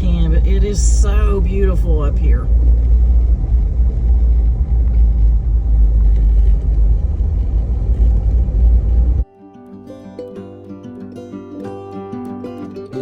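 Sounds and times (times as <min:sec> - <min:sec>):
car engine and road rumble: 0:00.0 - 0:09.2
quiet acoustic guitar music: 0:07.8 - 0:13.0.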